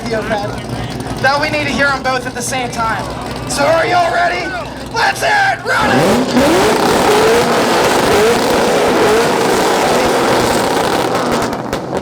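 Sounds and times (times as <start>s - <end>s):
car exhausts revving: 0.0s - 12.0s.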